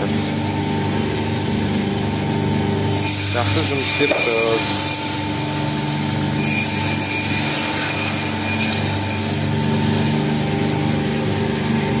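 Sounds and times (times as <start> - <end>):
band saw cutting meat: 0.0 - 12.0.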